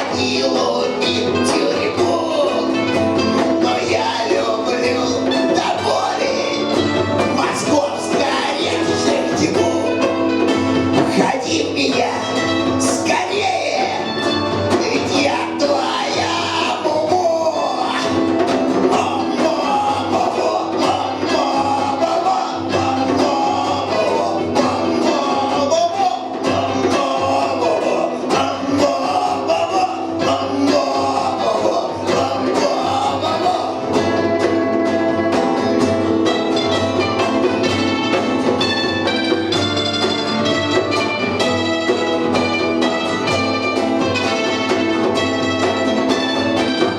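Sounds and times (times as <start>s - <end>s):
person singing: 0.0s - 35.8s
punk rock band playing live: 0.0s - 46.9s.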